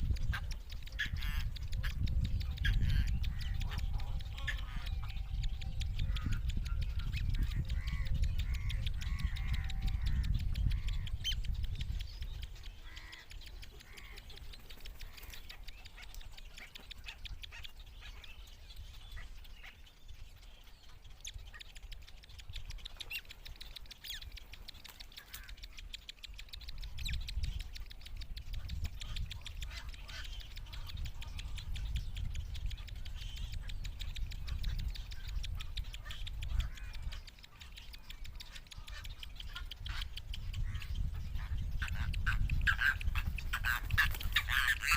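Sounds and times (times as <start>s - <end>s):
low microphone rumble: 0.0s - 12.7s
bird chicks giving nasal calls: 0.0s - 44.9s.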